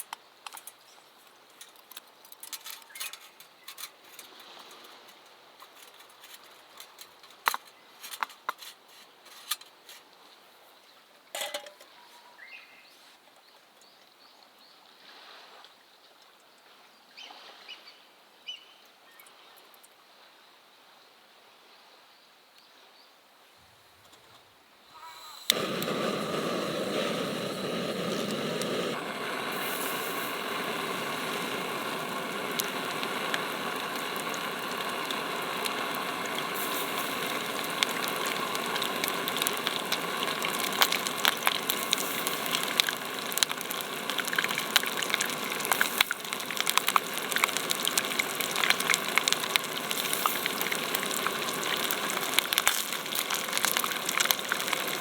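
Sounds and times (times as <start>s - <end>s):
hot oil sizzling and crackling: 2.1s - 10.0s, 25.0s - 55.0s.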